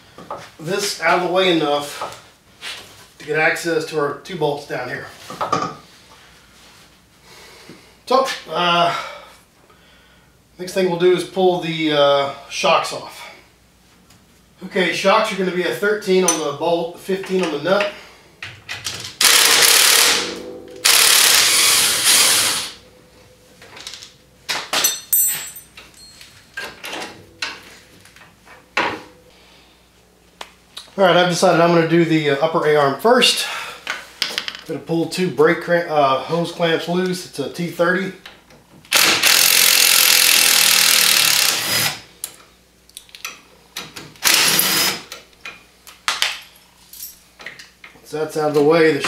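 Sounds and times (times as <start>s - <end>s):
power tool running: 19.2s - 22.8s, 38.9s - 42.0s, 44.2s - 45.1s
metal tools clinking and knocking: 23.6s - 27.7s.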